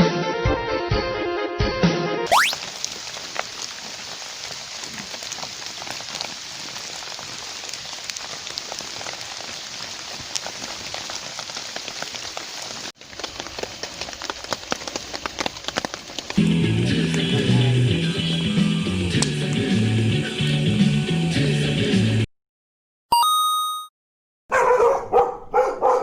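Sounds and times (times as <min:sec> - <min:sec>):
steady rain falling: 0:02.6 - 0:19.6.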